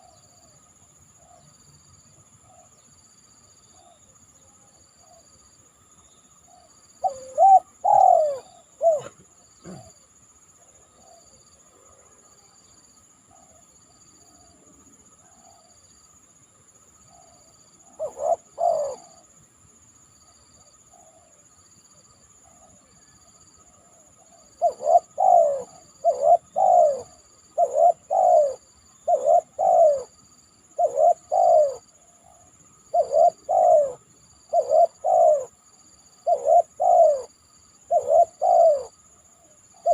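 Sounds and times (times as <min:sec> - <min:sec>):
faint pulsing chirp: 0:00.0 - 0:39.9
high insect drone: 0:00.0 - 0:39.9
dove cooing: 0:07.0 - 0:10.0, 0:17.1 - 0:19.3, 0:23.8 - 0:39.9.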